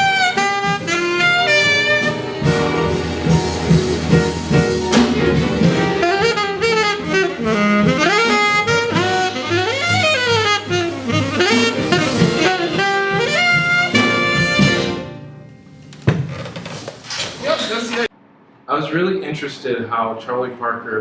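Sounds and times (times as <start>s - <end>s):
jazz saxophone: 0.0s - 15.7s
band accompaniment: 0.0s - 16.0s.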